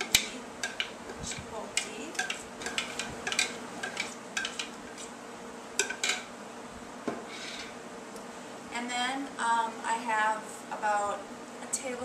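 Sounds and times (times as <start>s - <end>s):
spoon scraping a bowl: 0.0s - 5.1s, 7.3s - 7.8s.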